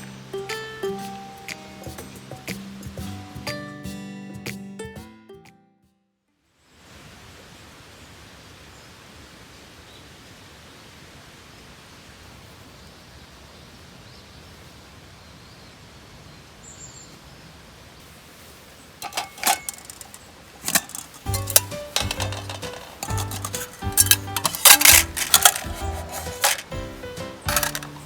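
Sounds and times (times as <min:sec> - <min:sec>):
outdoor background noise: 0:00.0 - 0:05.0, 0:06.3 - 0:28.0
sharp clicks and knocks: 0:19.0 - 0:26.8, 0:27.5 - 0:28.0.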